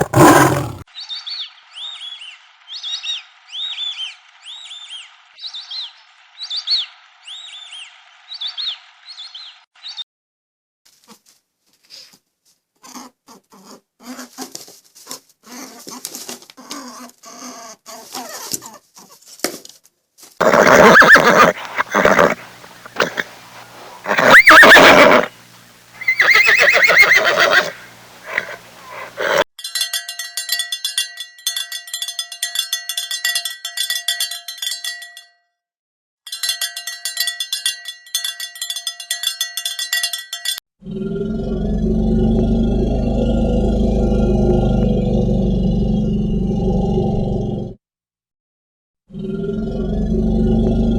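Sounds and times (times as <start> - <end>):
small animal short pitched calls: 26.0 - 29.4
cowbells clanking: 29.6 - 35.3, 36.3 - 40.6.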